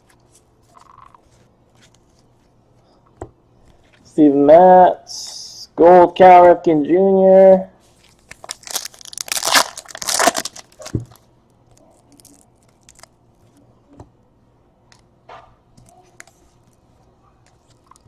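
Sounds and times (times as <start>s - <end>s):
foil wrapper tearing: 8.1s - 13.2s.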